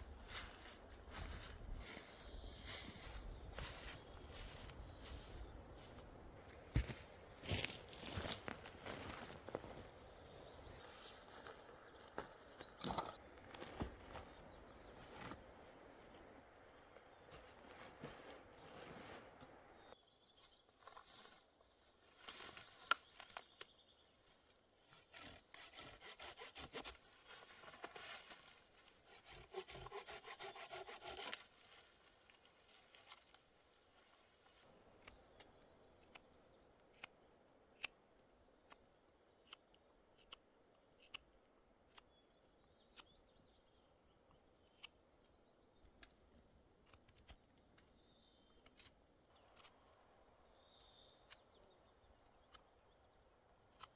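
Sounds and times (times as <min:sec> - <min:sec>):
hand saw cutting wood: 0:24.9 - 0:27.1, 0:29.0 - 0:31.5.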